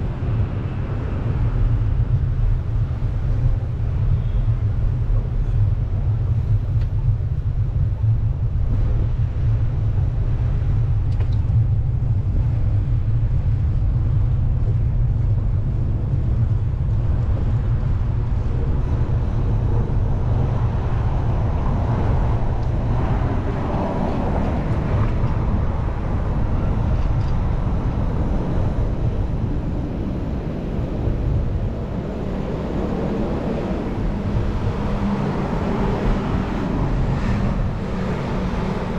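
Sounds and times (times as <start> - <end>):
wind rumble on microphone: 0.0 - 38.9
street traffic noise: 15.9 - 38.9.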